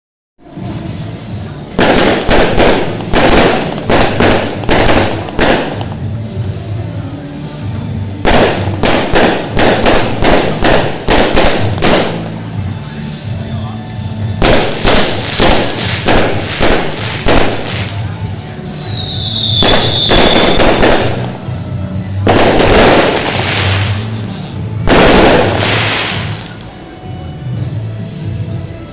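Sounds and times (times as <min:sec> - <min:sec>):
fireworks bangs: 0:00.4 - 0:13.4, 0:14.0 - 0:28.9
rising firework whistle: 0:18.6 - 0:20.8.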